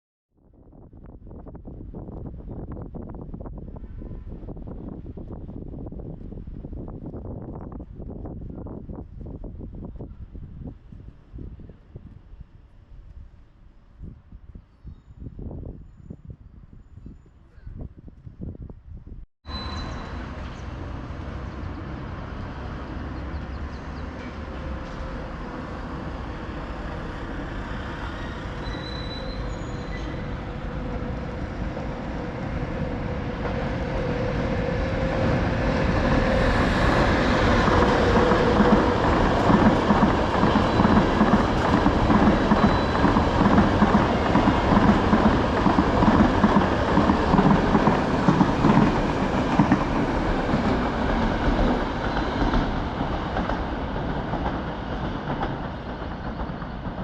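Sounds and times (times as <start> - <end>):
train running on tracks: 19.5 - 57.0.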